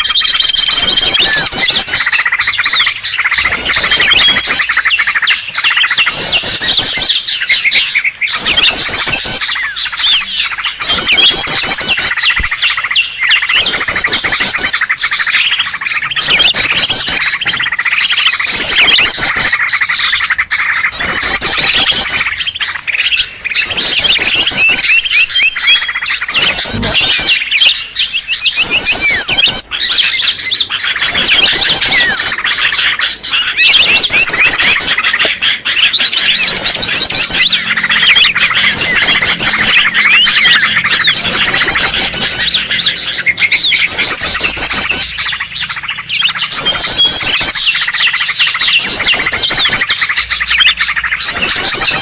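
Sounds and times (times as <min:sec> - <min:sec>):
birds chattering calls: 0:00.0 - 0:52.0
thin high bird whistles: 0:23.0 - 0:52.0.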